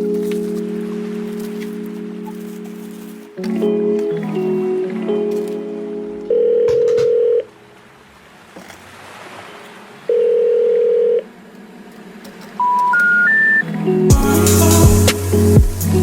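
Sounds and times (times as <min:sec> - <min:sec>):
long telephone beeps: 0:06.3 - 0:07.5, 0:10.1 - 0:11.2, 0:12.6 - 0:13.6
rising three-tone beeps: 0:12.6 - 0:13.6.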